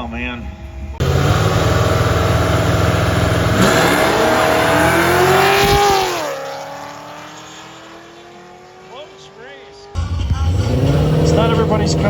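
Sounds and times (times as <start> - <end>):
racing car engines at full throttle: 0.0 - 12.0.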